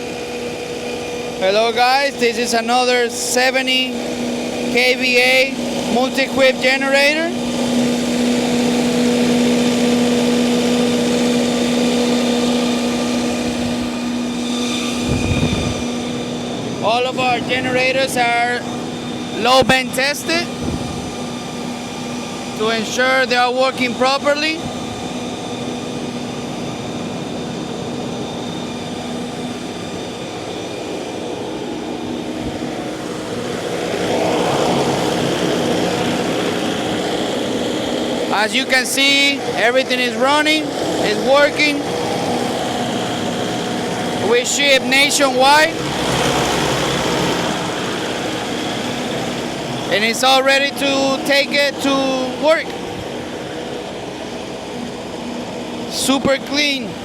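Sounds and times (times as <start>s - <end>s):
diesel generator running: 0.0s - 57.0s
rush of air: 12.0s - 17.8s, 20.5s - 22.1s.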